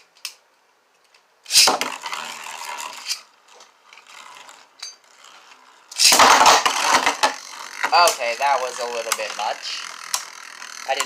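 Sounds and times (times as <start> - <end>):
spinning tops hitting hard: 1.5 - 3.3, 4.1 - 11.0
launchers ratcheting: 1.5 - 11.0
spinning tops rattling and scraping: 1.5 - 11.0.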